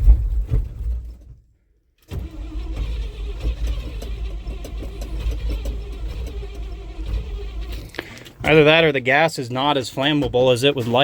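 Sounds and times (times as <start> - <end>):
engine cranking without starting: 2.0 - 9.0.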